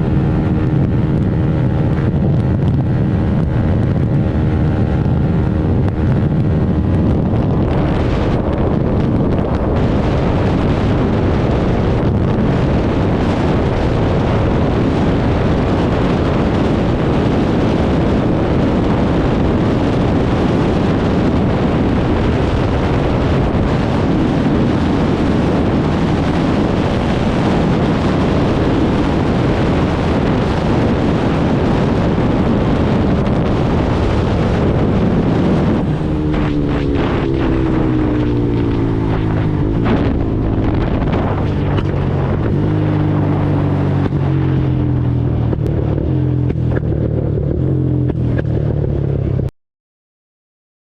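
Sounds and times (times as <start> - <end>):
motorcycle engine at high speed: 0.0 - 49.5
wind buffeting microphone: 0.0 - 49.5.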